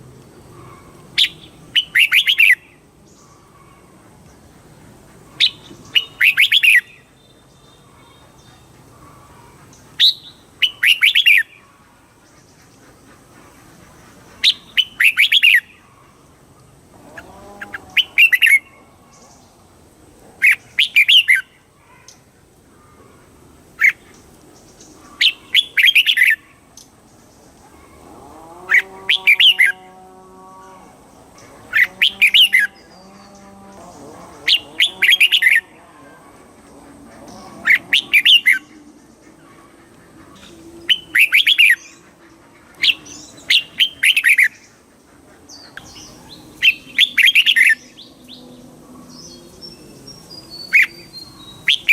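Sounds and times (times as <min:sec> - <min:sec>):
low steady bird call: 0:00.0 - 0:51.9
bulbul singing: 0:00.4 - 0:03.6, 0:05.3 - 0:09.0, 0:28.7 - 0:44.8, 0:45.5 - 0:51.9.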